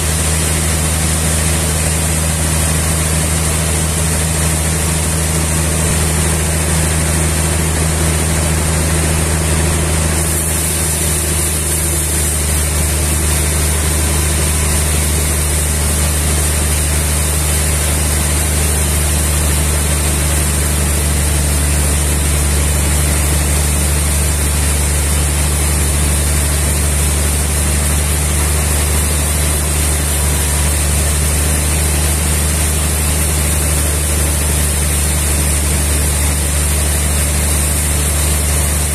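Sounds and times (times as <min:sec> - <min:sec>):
sawmill machinery whirring: 0:00.0 - 0:38.9.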